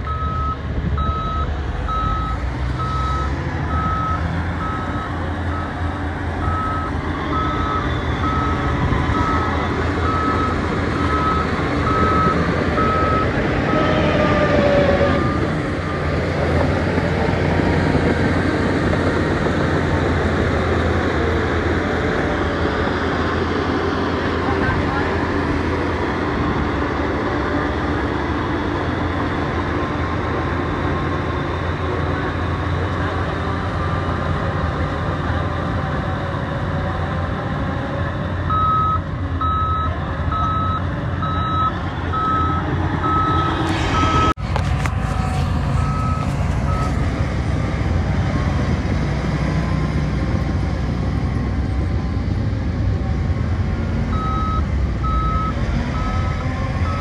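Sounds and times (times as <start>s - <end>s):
reversing alarm beeping: 0.0s - 5.8s, 6.4s - 13.9s, 38.5s - 44.4s, 45.7s - 47.0s, 54.1s - 57.0s
diesel construction machinery running: 0.0s - 57.0s.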